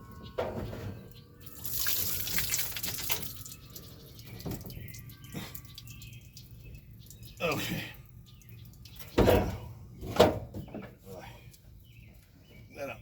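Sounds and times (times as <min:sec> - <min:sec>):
water from hose splashing: 0:01.5 - 0:09.1.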